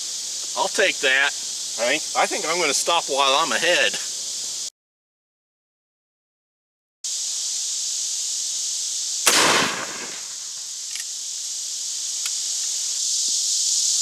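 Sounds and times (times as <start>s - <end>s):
high insect buzz: 0.0s - 4.7s, 7.0s - 14.0s
gunshot: 9.3s - 10.6s.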